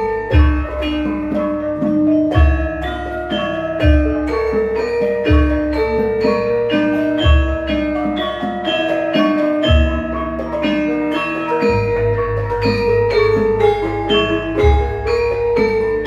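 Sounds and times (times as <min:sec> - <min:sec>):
gamelan metallophones ringing: 0:00.0 - 0:16.0.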